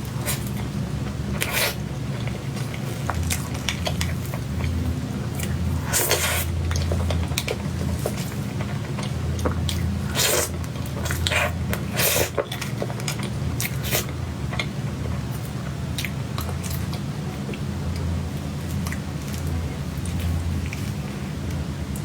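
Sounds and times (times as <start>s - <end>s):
steady low hum: 0.0s - 22.0s
person chewing with lip smacks: 1.4s - 18.1s.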